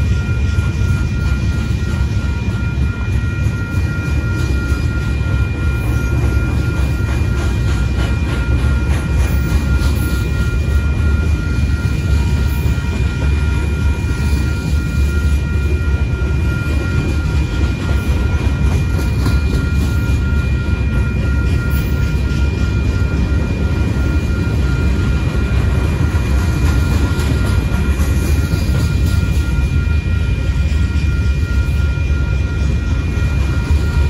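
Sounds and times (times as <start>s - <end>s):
crossing warning bell ringing: 0.0s - 34.0s
freight train wheels rumbling: 0.0s - 34.0s.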